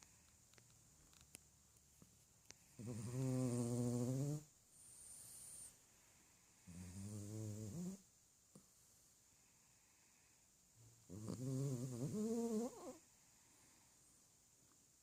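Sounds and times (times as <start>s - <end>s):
breathy hiss: 2.5s - 14.6s
dog snoring loudly: 2.8s - 5.7s, 6.7s - 8.0s, 11.1s - 13.0s.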